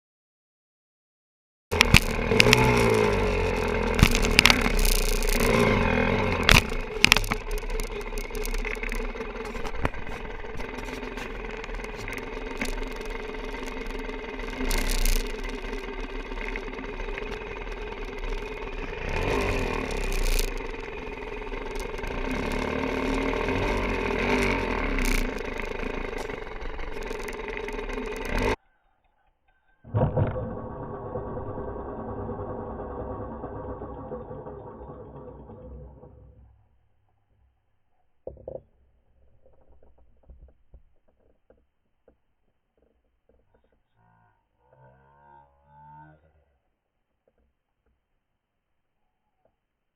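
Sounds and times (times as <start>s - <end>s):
dirt bike engine revving: 1.7s - 28.6s
sharp knocks and clatter: 1.7s - 28.6s.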